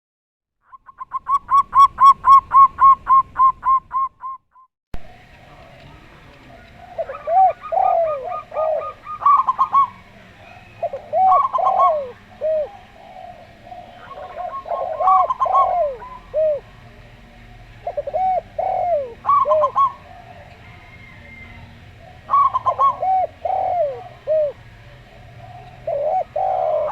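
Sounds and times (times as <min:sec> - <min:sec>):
doves cooing together: 0:05.0 - 0:26.9
dove high staccato coos: 0:05.1 - 0:16.8, 0:17.8 - 0:26.9.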